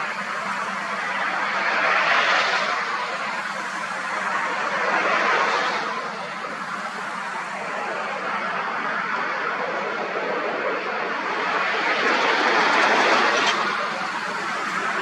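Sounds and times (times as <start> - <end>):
jet aircraft rushing: 9.7 - 15.0.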